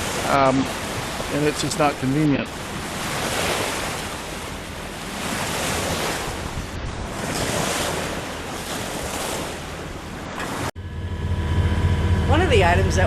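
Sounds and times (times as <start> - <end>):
rushing water: 0.0 - 10.8
wind buffeting microphone: 0.0 - 13.0.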